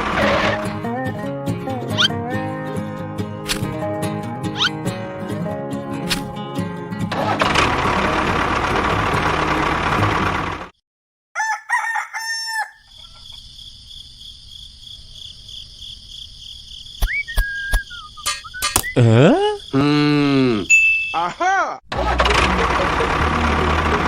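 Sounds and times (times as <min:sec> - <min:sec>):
rooster crowing: 0:11.4 - 0:13.4.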